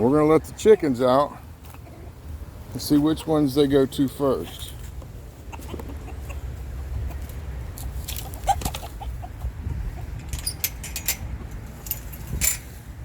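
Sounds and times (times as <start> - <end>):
chickens clucking: 0.0 - 10.6
sharp clicks and rattles: 10.1 - 12.7.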